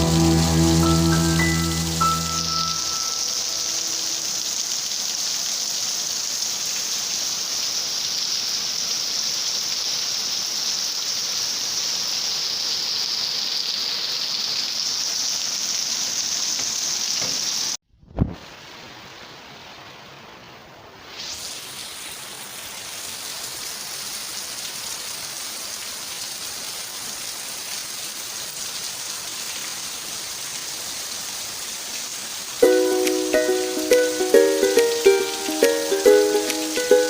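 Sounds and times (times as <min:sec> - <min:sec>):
heavy rain hissing: 0:00.0 - 0:25.7, 0:26.4 - 0:37.0
thump: 0:18.1 - 0:18.4.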